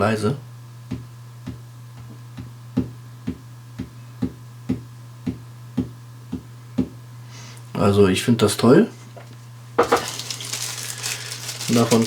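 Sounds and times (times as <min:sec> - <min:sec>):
light rhythmic taps: 0:00.8 - 0:07.0.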